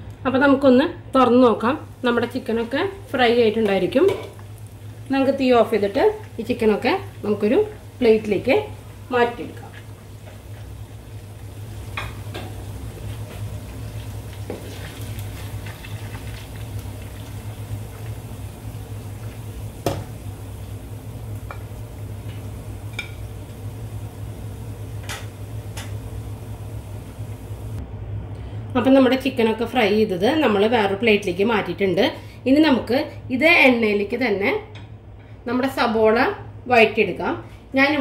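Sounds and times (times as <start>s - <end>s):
steady low hum: 0.0s - 38.0s
chicken sizzling in oil: 1.8s - 27.8s.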